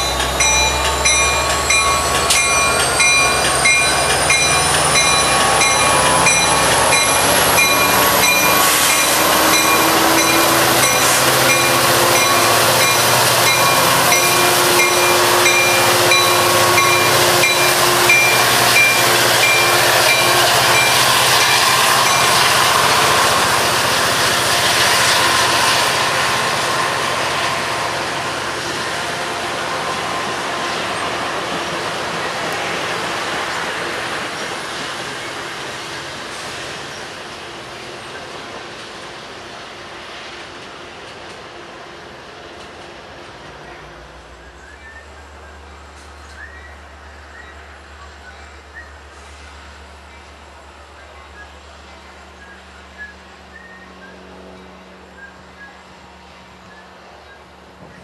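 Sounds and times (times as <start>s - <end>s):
high pulsing ringing: 0.0s - 23.5s
train wheels clattering on rails: 0.0s - 39.2s
diesel locomotive engine: 0.0s - 58.0s.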